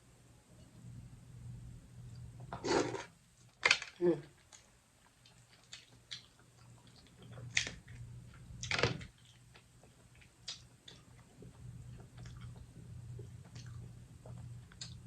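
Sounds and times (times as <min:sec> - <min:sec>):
wet chewing: 0:05.2 - 0:15.0.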